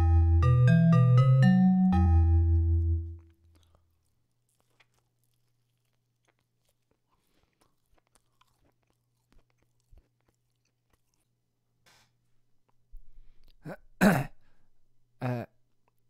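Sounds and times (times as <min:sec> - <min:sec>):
chewing with mouth clicks: 0:03.2 - 0:12.8.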